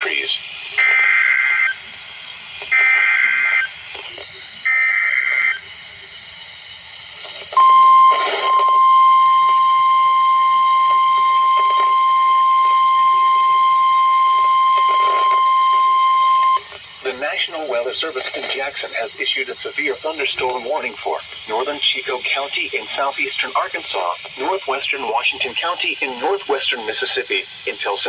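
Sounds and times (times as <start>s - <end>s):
steady warning alarm tone: 0.8s - 1.8s, 2.7s - 3.8s, 4.6s - 5.7s, 7.6s - 24.7s
rasping digital data bursts: 2.7s - 5.7s.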